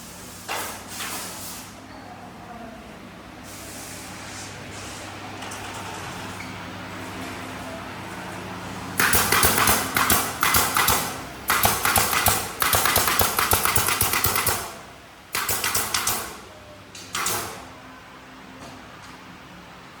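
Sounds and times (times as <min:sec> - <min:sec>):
tool rattling and clicking: 0:09.0 - 0:14.7.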